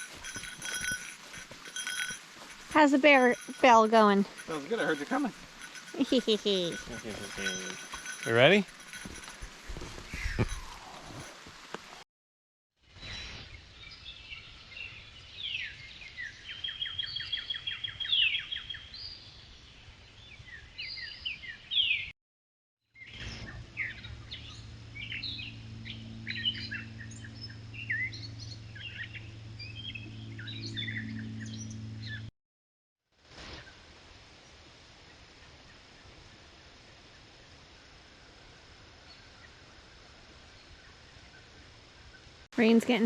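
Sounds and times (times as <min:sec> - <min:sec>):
bird trill: 0:00.0 - 0:09.4.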